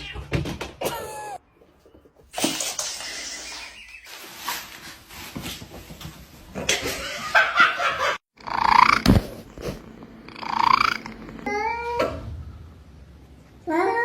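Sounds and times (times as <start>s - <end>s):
pet animal crying: 8.4s - 9.1s, 10.3s - 12.0s.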